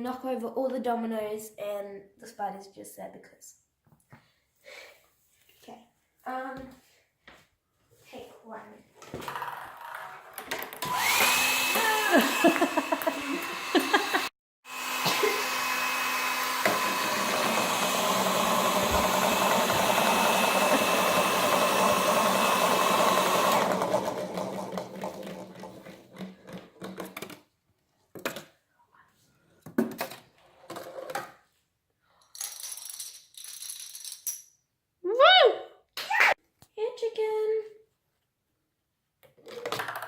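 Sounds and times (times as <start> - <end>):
hair dryer blowing: 10.8 - 25.3.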